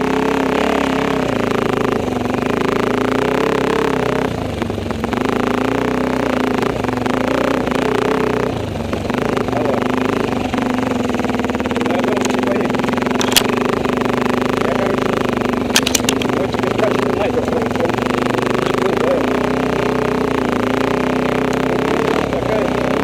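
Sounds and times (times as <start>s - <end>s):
motorcycle engine running: 0.0s - 23.0s
sharp clicks: 11.6s - 13.9s, 15.5s - 17.1s.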